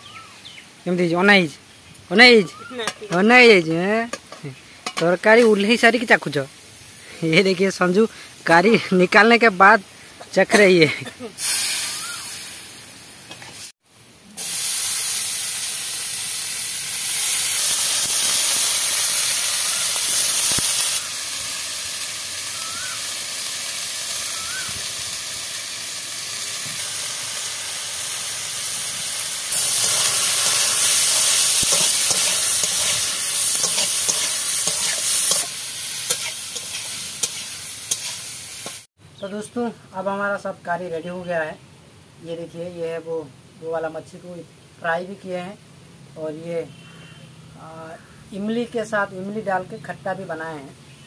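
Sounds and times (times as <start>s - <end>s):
beans sizzling in hot oil: 0.1s - 39.4s
metal spatula stirring: 29.6s - 38.8s.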